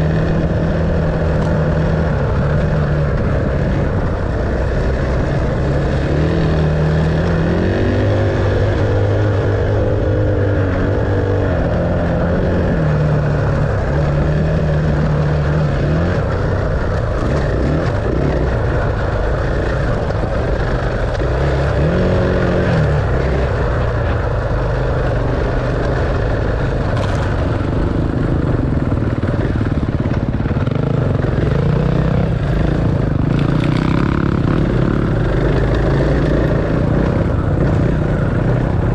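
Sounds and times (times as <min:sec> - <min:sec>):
dirt bike engine revving: 0:00.0 - 0:38.9
steady rushing noise: 0:00.0 - 0:38.9.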